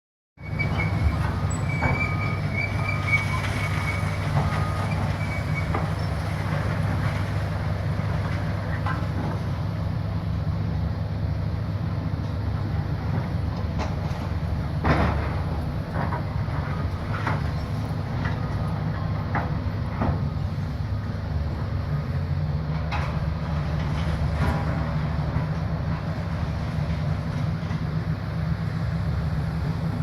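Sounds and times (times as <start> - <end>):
high metal squeal: 0.4 - 6.4
demolition machinery rumbling: 0.4 - 30.0.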